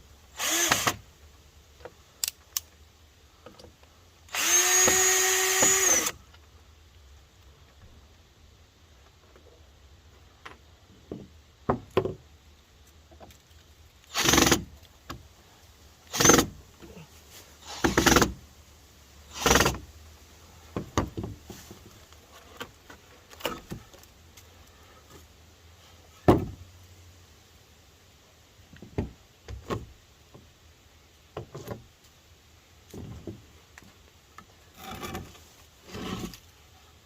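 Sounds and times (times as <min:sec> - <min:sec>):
scrapes and knocks on wooden boards: 0:20.7 - 0:24.0, 0:31.3 - 0:31.9, 0:32.9 - 0:34.0, 0:34.7 - 0:36.4.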